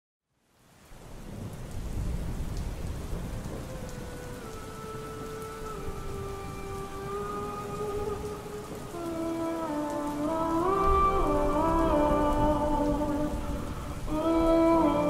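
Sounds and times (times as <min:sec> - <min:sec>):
steady rain hiss: 0:00.2 - 0:15.0
rain drop ticks: 0:00.8 - 0:15.0
low thunder rumble: 0:01.3 - 0:04.4.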